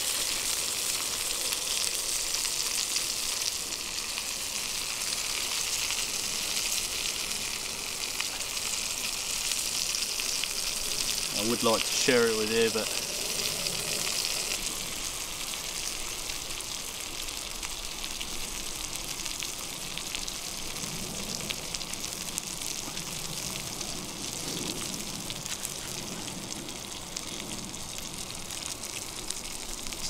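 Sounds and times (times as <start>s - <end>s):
meat sizzling in a pan: 0.0s - 30.0s
small pops and crackles: 12.5s - 30.0s.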